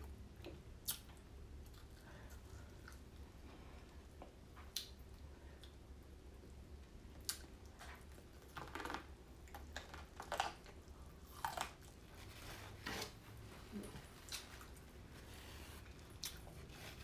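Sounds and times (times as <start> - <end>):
person chewing corn crunching: 0.0 - 3.2, 7.2 - 12.7, 15.8 - 17.0.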